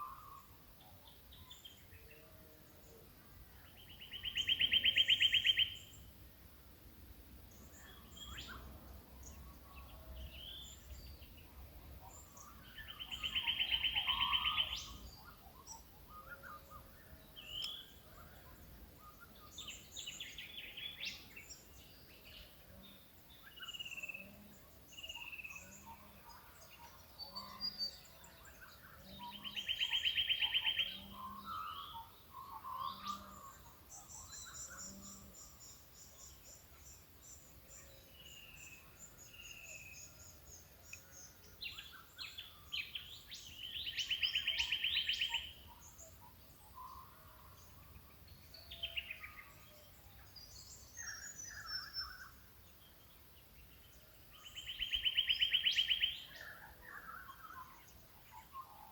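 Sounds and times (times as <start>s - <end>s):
birds chirping and twittering: 0.0s - 6.4s, 7.4s - 58.9s
low evenly spaced hoots: 12.2s - 16.9s.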